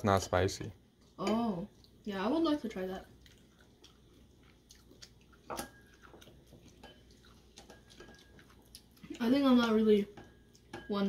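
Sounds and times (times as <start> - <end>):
person chewing noodles: 3.0 - 9.2.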